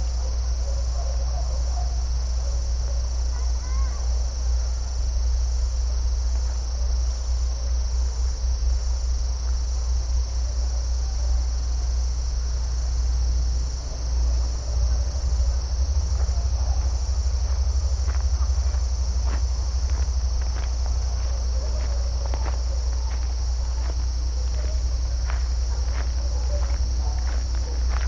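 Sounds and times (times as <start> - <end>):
crickets trilling: 0.0 - 28.0
low rumble: 12.2 - 28.0
fast low pulsing: 12.6 - 28.0.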